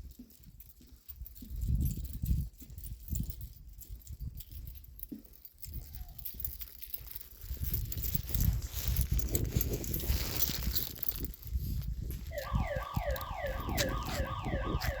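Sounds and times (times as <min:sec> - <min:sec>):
electronic siren yelping: 0:12.3 - 0:15.0.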